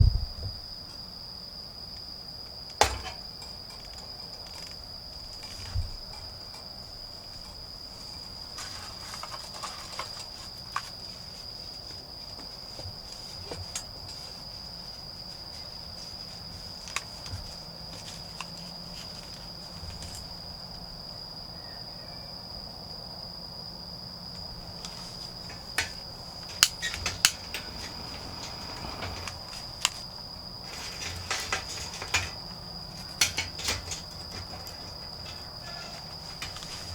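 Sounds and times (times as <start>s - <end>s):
crickets trilling: 0.0s - 36.9s
sharp knocks and rustles: 24.6s - 36.9s.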